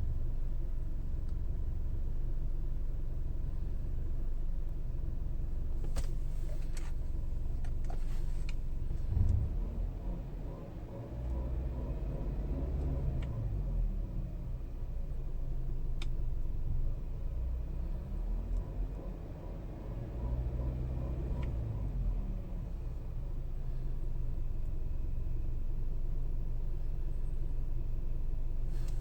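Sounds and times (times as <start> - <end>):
car engine running: 0.0 - 29.0
loud bump: 9.0 - 10.0.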